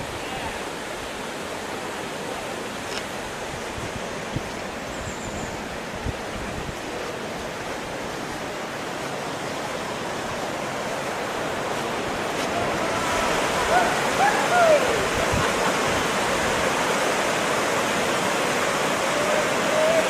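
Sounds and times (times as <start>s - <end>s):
fast-flowing river rushing: 0.0s - 20.0s.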